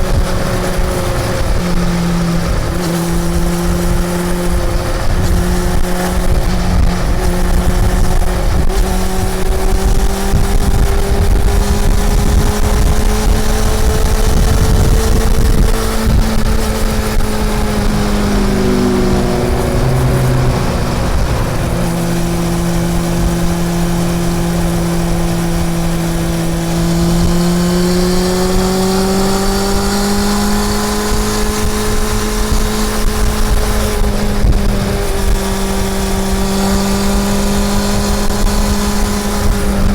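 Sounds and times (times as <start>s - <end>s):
motorcycle engine running: 0.0s - 39.9s
heavy low rumble: 10.6s - 30.4s.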